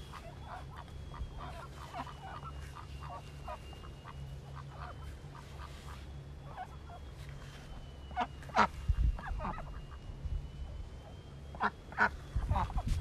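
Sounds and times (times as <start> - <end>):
ducks quacking: 0.0 - 10.8, 11.5 - 13.0
faint steady high tone: 0.0 - 13.0.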